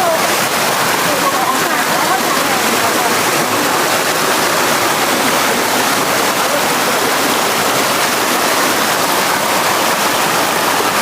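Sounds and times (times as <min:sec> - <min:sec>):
rushing mountain river: 0:00.0 - 0:11.0.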